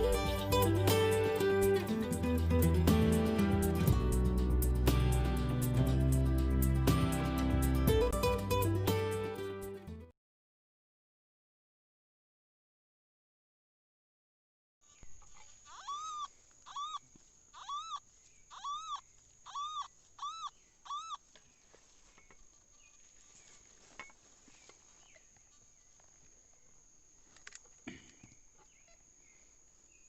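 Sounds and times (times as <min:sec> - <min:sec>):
animal call: 0:15.4 - 0:21.2.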